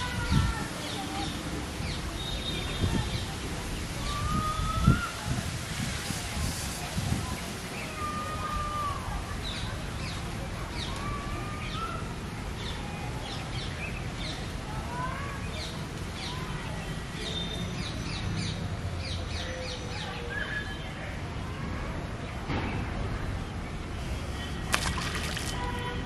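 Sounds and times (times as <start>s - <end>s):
low background noise: 0.0s - 26.0s.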